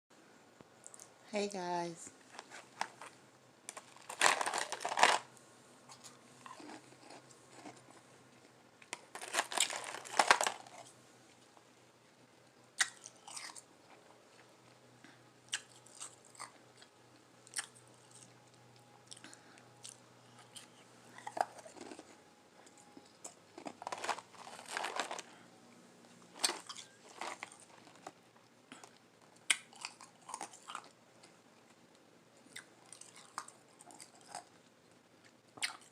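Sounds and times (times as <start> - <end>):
biting and chewing ice: 3.7 - 5.3, 5.9 - 8.0, 8.9 - 10.9, 12.8 - 13.6, 19.1 - 25.3, 26.4 - 28.2, 28.8 - 31.0, 32.5 - 34.5.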